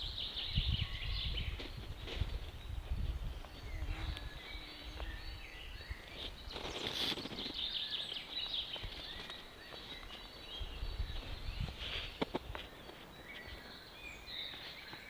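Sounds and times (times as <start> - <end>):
birds chirping and trilling: 0.0 - 15.0
brief rustle: 6.1 - 7.7.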